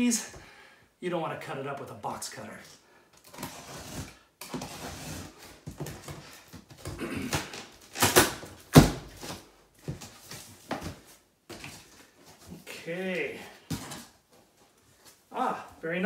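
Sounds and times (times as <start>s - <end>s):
cardboard flaps tearing open: 7.3s - 9.4s
box cutter slicing packing tape: 7.8s - 8.9s.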